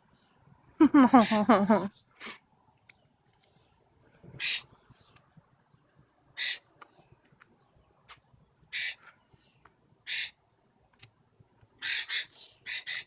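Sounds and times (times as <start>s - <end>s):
blackbirds harsh scratchy calls: 4.4s - 4.8s, 6.4s - 6.8s, 8.7s - 9.2s, 10.0s - 10.4s, 11.8s - 13.0s.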